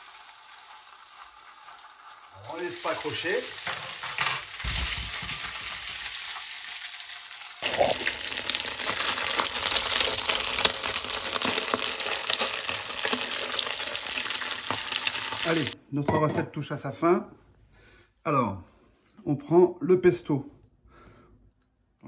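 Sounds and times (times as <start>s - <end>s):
octopus frying sizzle: 0.0s - 15.8s.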